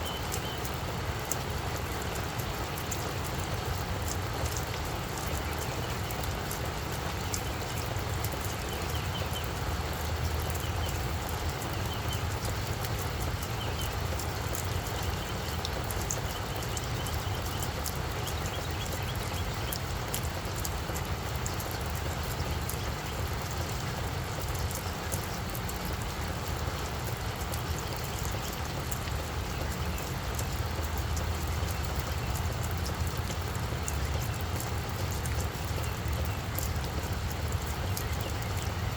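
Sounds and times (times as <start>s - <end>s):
rain falling on plants: 0.0s - 38.9s.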